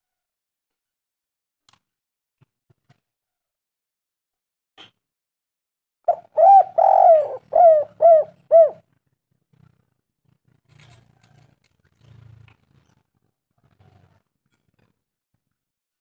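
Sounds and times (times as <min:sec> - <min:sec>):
dove cooing: 0:06.1 - 0:08.8.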